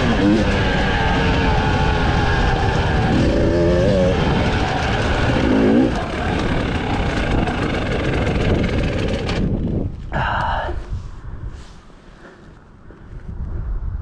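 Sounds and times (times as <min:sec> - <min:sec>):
motorcycle engine revving: 0:00.0 - 0:09.9.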